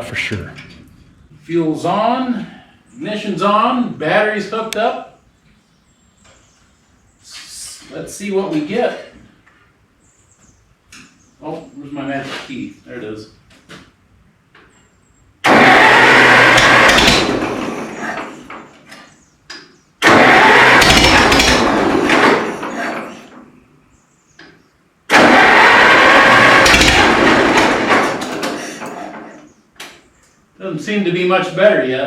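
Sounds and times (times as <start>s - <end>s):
tractor engine starting and dying: 15.4s - 19.2s, 20.0s - 23.6s, 25.1s - 29.5s
carburetor popping: 15.5s - 18.6s, 20.0s - 23.0s, 25.1s - 29.2s.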